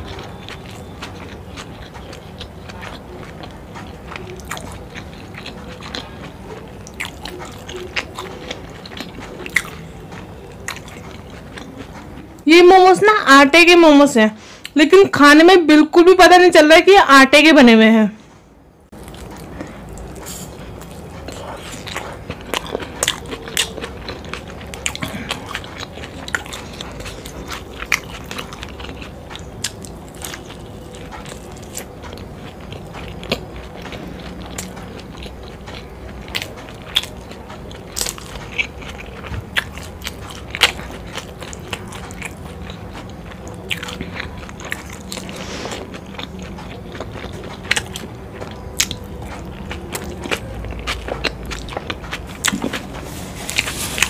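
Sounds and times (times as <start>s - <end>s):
wet squishy chewing: 0.0s - 12.5s, 18.9s - 54.0s.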